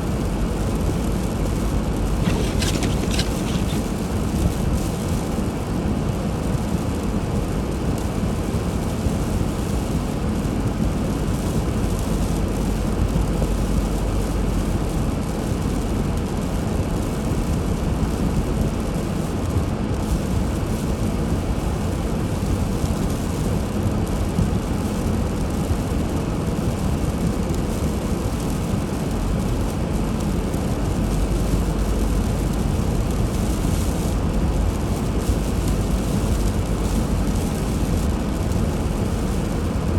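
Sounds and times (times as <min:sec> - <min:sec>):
car driving rumble: 0:00.1 - 0:06.7, 0:29.0 - 0:39.9.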